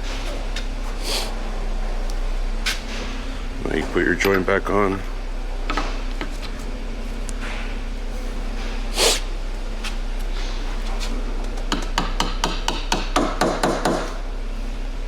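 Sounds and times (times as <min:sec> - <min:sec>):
brief scrape: 0:08.9 - 0:11.1.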